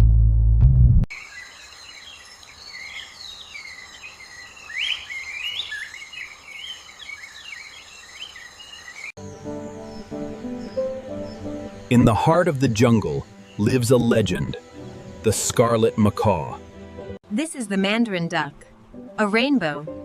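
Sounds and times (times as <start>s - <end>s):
music: 0.0s - 1.0s, 9.2s - 20.0s
birds chirping and warbling: 1.1s - 16.8s
high insect drone: 1.1s - 16.8s.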